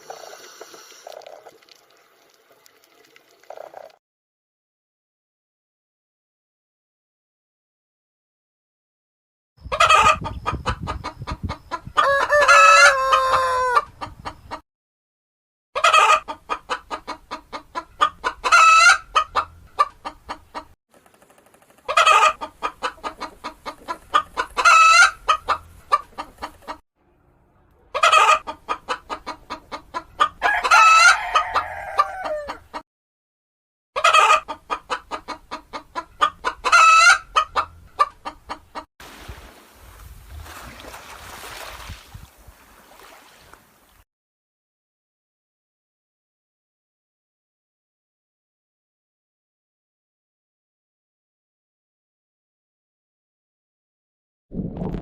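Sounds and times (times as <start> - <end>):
chickens clucking: 9.6 - 14.6, 15.8 - 26.8, 27.8 - 32.8, 34.0 - 38.9.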